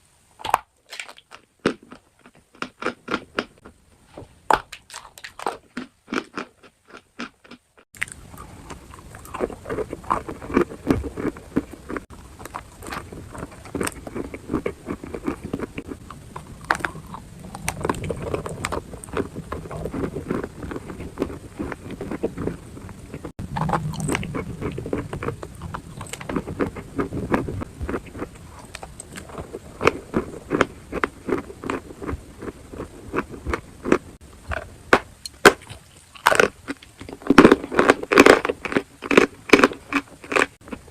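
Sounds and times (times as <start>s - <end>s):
crunchy chewing: 0.4s - 3.8s, 4.5s - 40.9s.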